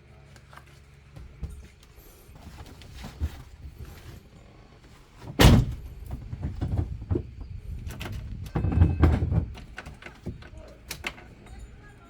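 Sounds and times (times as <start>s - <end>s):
heavy thump: 5.3s - 7.2s.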